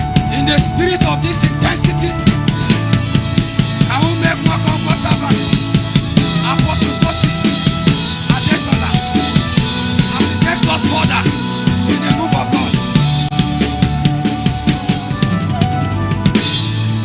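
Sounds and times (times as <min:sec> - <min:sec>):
band music: 0:00.0 - 0:17.0
drum kit beat: 0:00.0 - 0:17.0.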